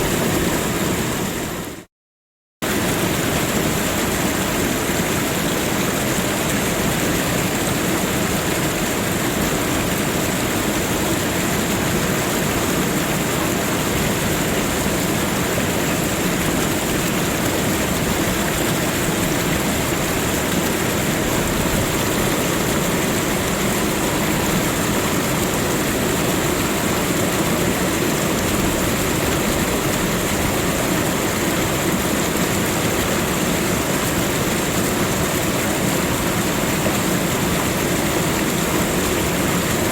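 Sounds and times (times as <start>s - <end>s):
rushing water: 0.0s - 1.9s, 2.6s - 39.9s.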